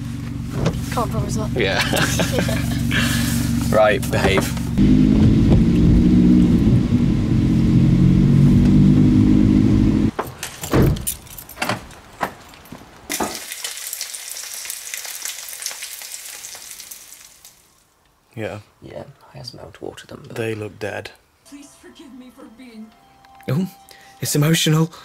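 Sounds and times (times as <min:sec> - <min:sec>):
car engine running: 0:00.0 - 0:10.1
knocks and bumps: 0:04.1 - 0:06.0
food sizzling: 0:13.1 - 0:17.8.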